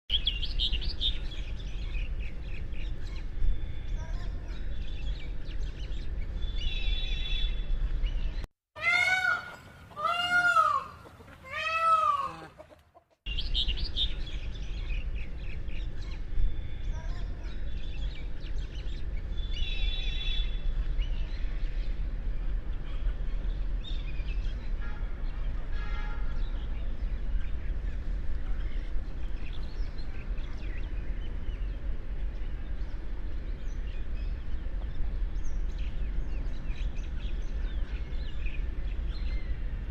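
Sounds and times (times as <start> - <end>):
small birds chirping: 0.1 - 25.7, 26.3 - 39.9
peacock calling: 8.8 - 13.2.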